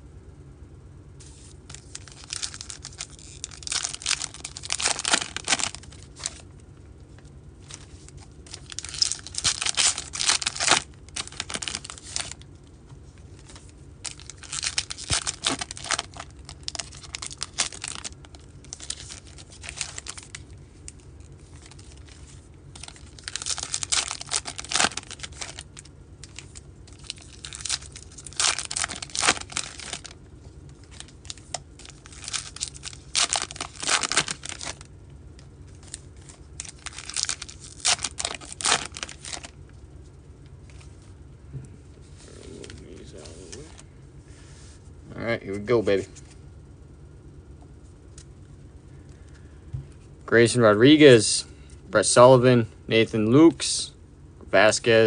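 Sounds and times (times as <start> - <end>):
wrapper tearing and crinkling: 1.4 - 6.4, 7.6 - 12.4, 13.4 - 20.4, 21.4 - 30.2, 30.8 - 34.9, 35.8 - 39.5.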